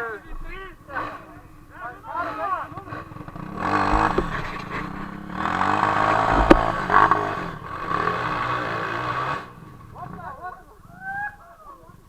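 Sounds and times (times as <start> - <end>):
motorcycle engine revving: 0.0 - 11.1
sharp knock: 3.6 - 7.2.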